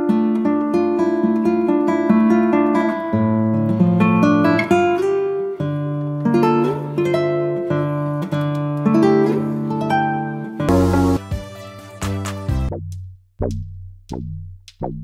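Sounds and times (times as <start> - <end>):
plucked acoustic guitar tune: 0.0 - 12.7
bass line: 10.7 - 11.4, 12.0 - 15.0.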